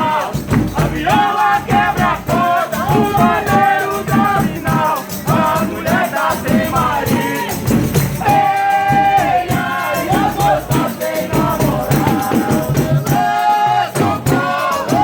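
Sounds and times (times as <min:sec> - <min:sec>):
group singing in held notes: 0:00.0 - 0:15.0
shaken percussion beat: 0:00.0 - 0:15.0.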